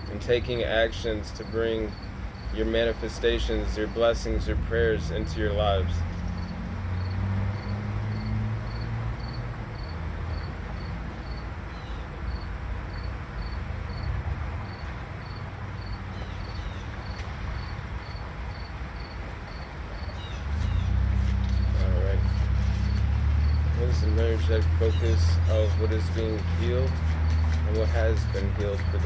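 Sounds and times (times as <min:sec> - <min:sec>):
cricket chirping: 0:06.3 - 0:20.3.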